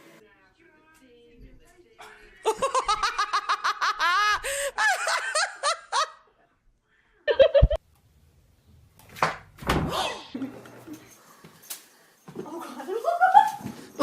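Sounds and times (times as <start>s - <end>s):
person laughing hard: 2.4s - 6.2s, 7.3s - 7.8s.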